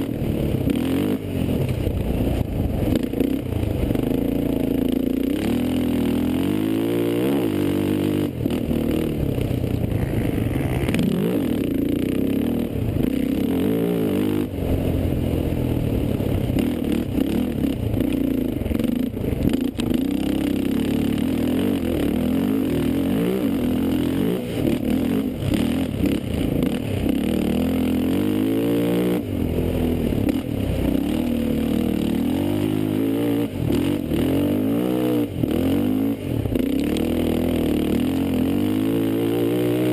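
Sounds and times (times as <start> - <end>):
quad engines revving: 2.8 - 15.0.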